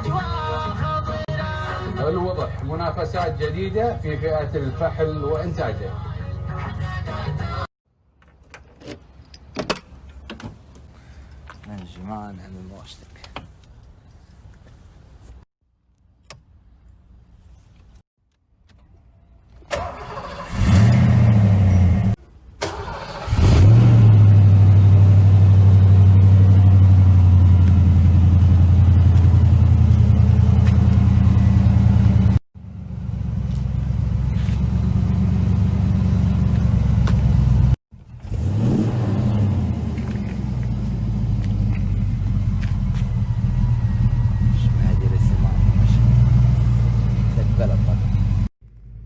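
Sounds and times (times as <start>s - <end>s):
car engine starting and revving: 19.7s - 48.5s.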